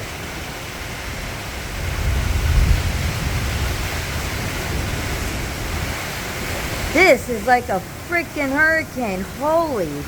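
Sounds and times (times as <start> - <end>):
heavy rain: 0.0 - 10.0
strong wind: 0.0 - 10.0
wind rumble on microphone: 0.1 - 7.0.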